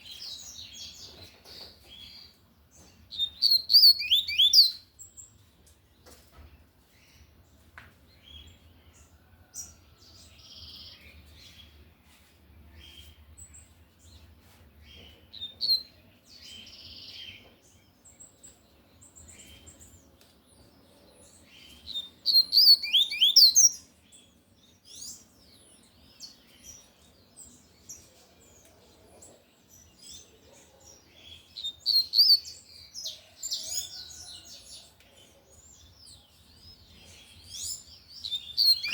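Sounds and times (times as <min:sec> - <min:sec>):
soft bird chirps: 0:00.0 - 0:07.4, 0:10.5 - 0:38.9.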